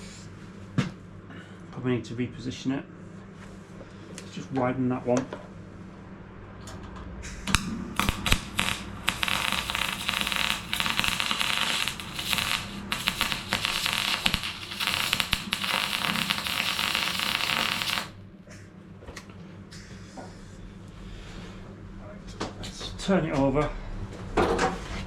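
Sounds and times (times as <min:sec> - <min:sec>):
welder arc crackling: 0:07.5 - 0:18.3.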